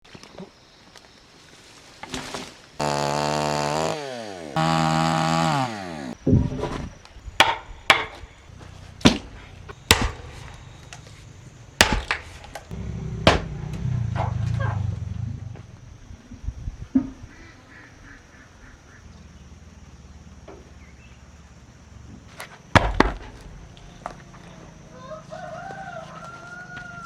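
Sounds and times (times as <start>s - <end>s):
chainsaw revving: 2.8s - 6.2s, 12.7s - 14.2s
axe chopping wood: 2.8s - 6.4s, 7.4s - 8.2s, 9.0s - 10.5s, 11.8s - 12.6s, 13.2s - 13.5s, 22.8s - 23.4s
low hum: 12.7s - 16.5s.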